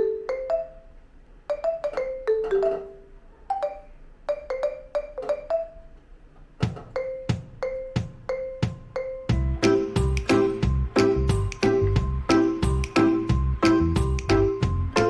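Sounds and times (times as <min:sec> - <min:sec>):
mallet percussion melody: 0:01.5 - 0:06.0, 0:06.6 - 0:15.0
beat with deep thumps: 0:06.6 - 0:15.0.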